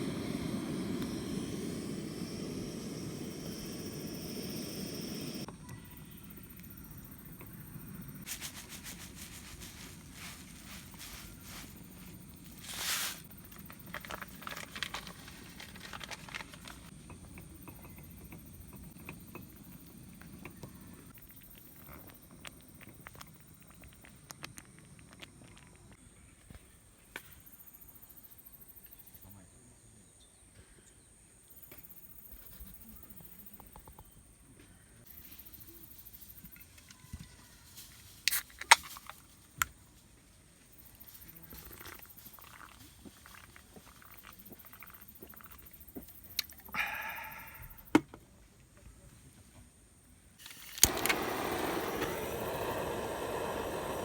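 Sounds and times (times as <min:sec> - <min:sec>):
high insect drone: 0:00.0 - 0:08.3, 0:44.4 - 0:48.0
handling noises: 0:08.2 - 0:16.9
short hiss: 0:50.4 - 0:54.0.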